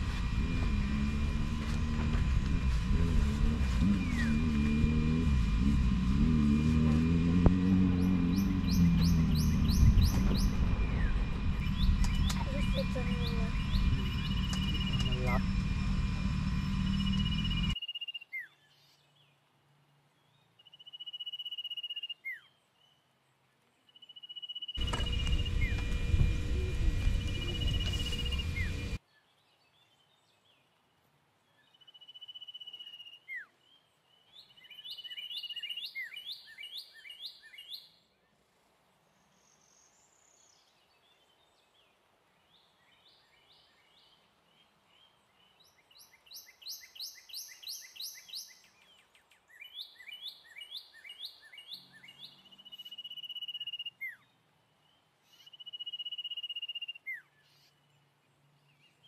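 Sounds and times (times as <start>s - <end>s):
birds singing: 3.4s - 5.2s, 7.6s - 19.4s, 23.9s - 30.7s, 31.5s - 38.1s, 39.2s - 59.0s.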